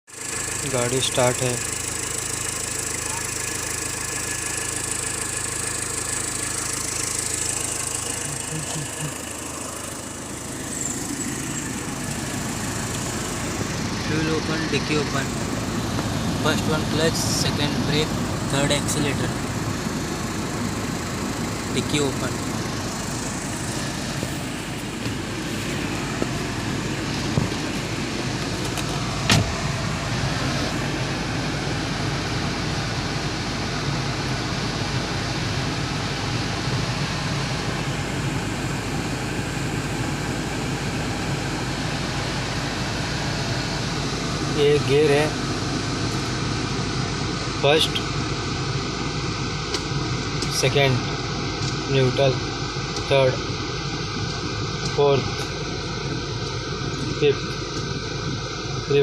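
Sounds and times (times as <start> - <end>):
car engine idling: 0.1 - 59.0.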